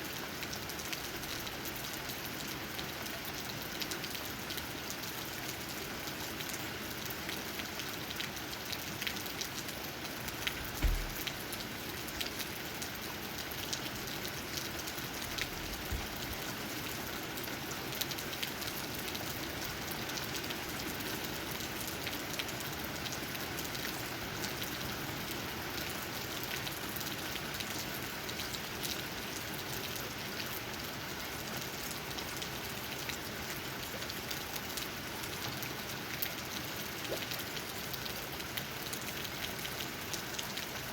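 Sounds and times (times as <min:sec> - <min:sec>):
rain drops tapping on leaves: 0:00.1 - 0:40.9
low thump: 0:10.5 - 0:11.4.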